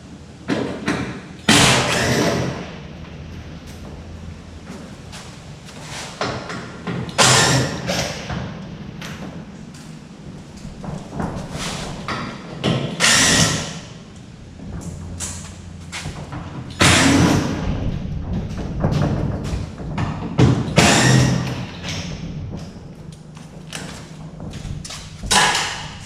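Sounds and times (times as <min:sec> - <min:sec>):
knocks and thumps of body panels: 0:15.8 - 0:22.9.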